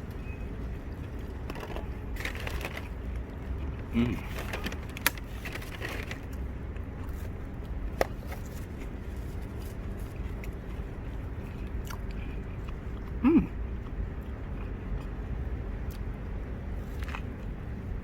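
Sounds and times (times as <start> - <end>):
low steady rumble: 0.0 - 18.0
person chewing crispy food: 1.5 - 15.2, 16.8 - 17.5
person humming: 3.9 - 4.3, 13.2 - 13.5.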